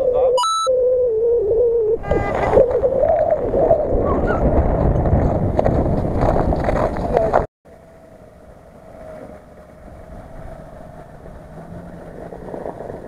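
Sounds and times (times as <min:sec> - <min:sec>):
wind buffeting microphone: 0:00.0 - 0:07.5, 0:08.6 - 0:13.0
vehicle engine wavering: 0:07.7 - 0:13.0.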